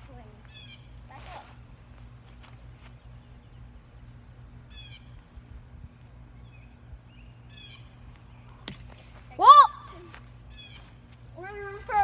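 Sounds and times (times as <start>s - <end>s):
steady low hum: 0.0s - 12.0s
bird chirping: 2.8s - 5.3s, 5.9s - 8.6s.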